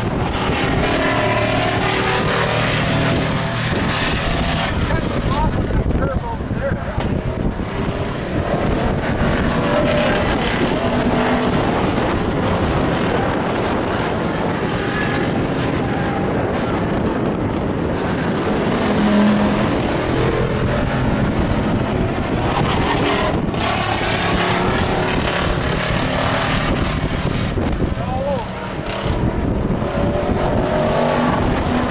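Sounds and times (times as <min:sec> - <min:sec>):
race truck engines passing: 0:00.0 - 0:31.9.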